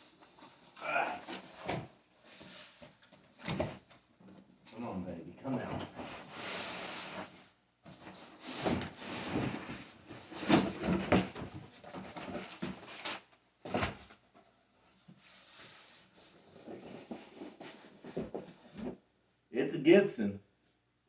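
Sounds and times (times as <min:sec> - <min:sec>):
cardboard rubbing and scraping: 0:15.2 - 0:19.0.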